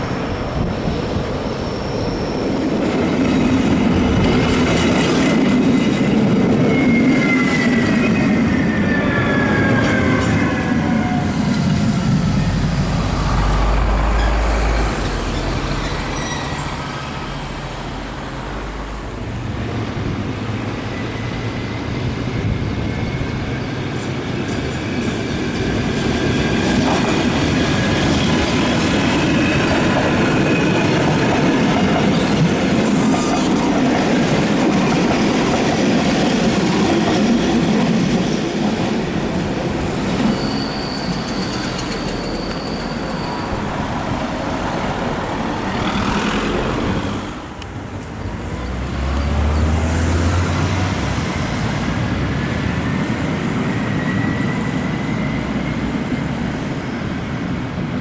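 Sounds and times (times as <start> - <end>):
train wheels rumbling on rails: 0.0 - 58.0
high wheel squeal: 0.5 - 3.1, 6.4 - 17.9, 20.5 - 24.2, 39.8 - 46.8, 53.6 - 56.4.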